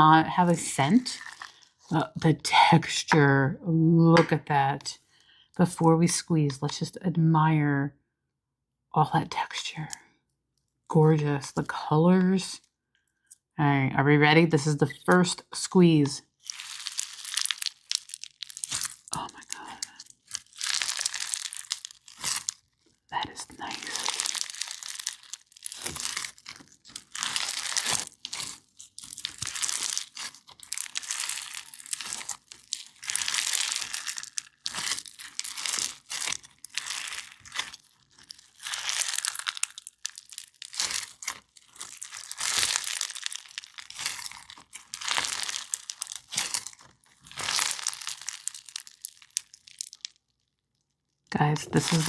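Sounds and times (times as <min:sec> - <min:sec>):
slime crackling and popping: 0:00.0 - 0:02.2, 0:15.9 - 0:52.0.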